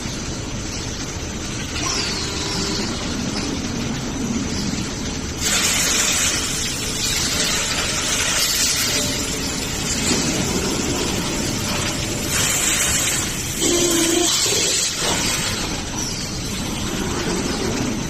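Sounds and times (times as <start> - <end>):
machinery rumble and hiss: 0.0 - 18.0
bright hiss: 5.4 - 16.6.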